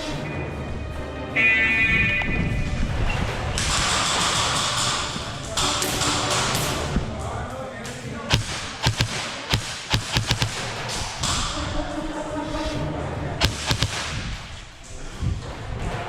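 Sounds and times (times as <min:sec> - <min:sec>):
airsoft gunshots snapping: 0:03.6 - 0:07.0, 0:08.3 - 0:11.7, 0:13.4 - 0:14.6.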